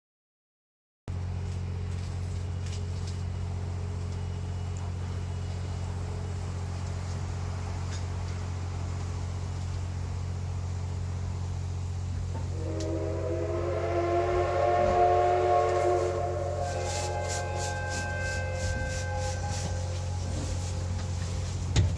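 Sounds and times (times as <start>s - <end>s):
diesel locomotive idling: 1.1s - 21.9s.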